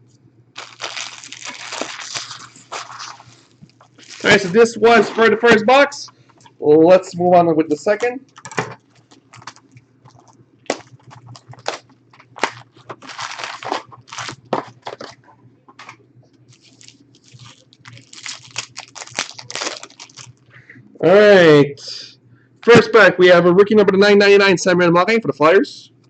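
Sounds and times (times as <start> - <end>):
packaging tearing and crinkling: 0.6 - 5.2, 9.0 - 15.2, 16.5 - 20.4.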